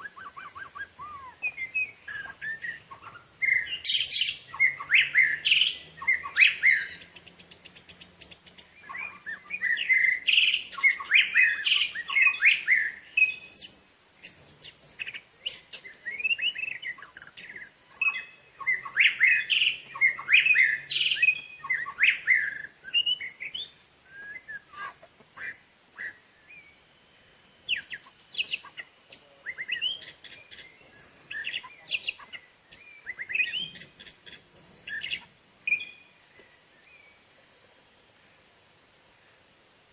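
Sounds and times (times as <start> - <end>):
bird singing whistled phrases: 0.0 - 7.2, 8.8 - 26.7, 27.7 - 33.9
steady high-pitched hiss: 0.0 - 39.9.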